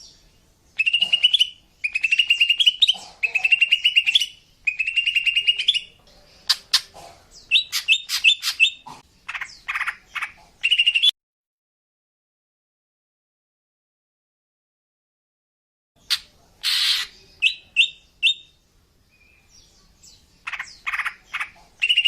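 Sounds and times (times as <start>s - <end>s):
bird sharp chirps: 0.8s - 11.1s, 16.0s - 18.6s, 19.2s - 22.0s.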